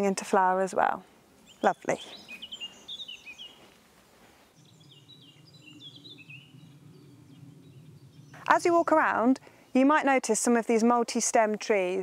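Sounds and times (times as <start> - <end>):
songbirds singing: 0.0 - 3.8, 4.4 - 12.0
faint low hum: 3.5 - 9.8.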